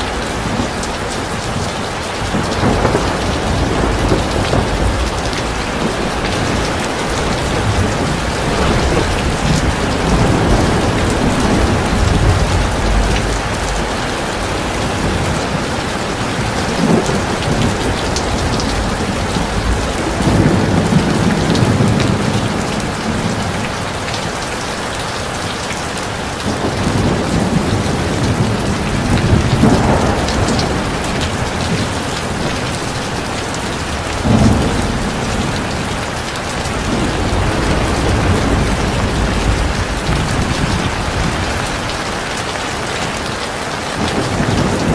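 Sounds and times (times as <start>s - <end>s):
heavy rain falling: 0.0s - 44.9s
low rumbles: 2.5s - 15.5s.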